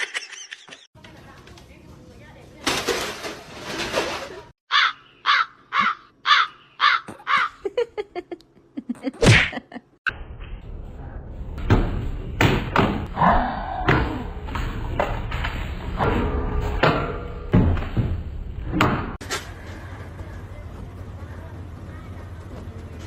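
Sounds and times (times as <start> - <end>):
animal calling: 4.7 - 7.6
noisy background: 18.4 - 23.0.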